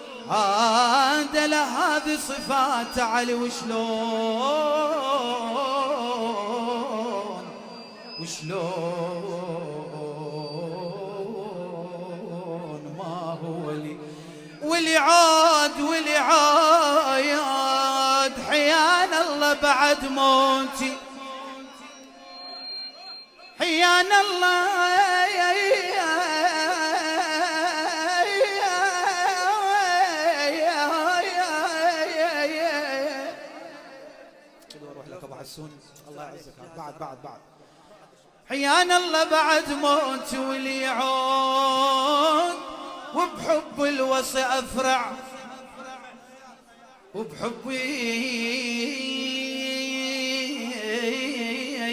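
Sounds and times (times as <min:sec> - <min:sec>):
man singing a devotional chant: 0:00.0 - 0:22.1, 0:23.4 - 0:35.4, 0:38.4 - 0:51.9.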